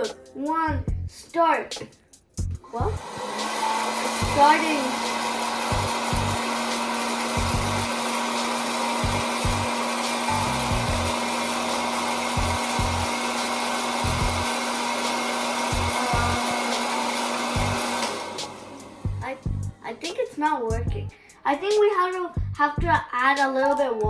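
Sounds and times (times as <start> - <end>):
popcorn maker fan rushing: 2.7 - 19.7
low rumbles: 19.1 - 19.8.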